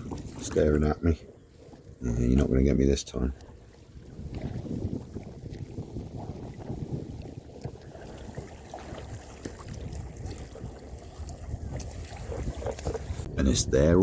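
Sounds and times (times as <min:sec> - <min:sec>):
water lapping around a canoe: 0:00.0 - 0:14.0
wind buffeting microphone: 0:00.0 - 0:14.0
small splashes: 0:03.3 - 0:13.2.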